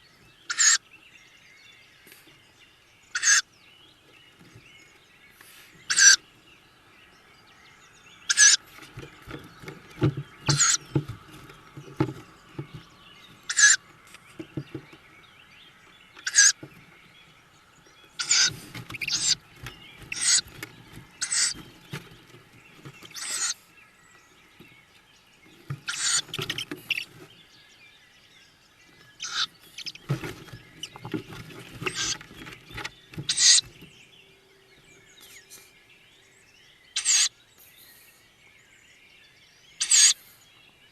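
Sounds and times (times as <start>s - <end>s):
owl chicks hissing calls: 0.5s - 0.8s, 3.1s - 3.5s, 5.3s - 6.2s, 8.3s - 9.0s, 10.4s - 10.9s, 13.4s - 13.9s, 16.2s - 16.6s, 18.1s - 21.8s, 23.1s - 23.8s, 25.7s - 27.3s, 29.1s - 33.8s, 37.0s - 38.3s, 39.8s - 40.6s
scuffling and knocking in nest box: 8.6s - 15.1s, 18.1s - 23.5s, 25.5s - 27.4s, 29.0s - 34.0s.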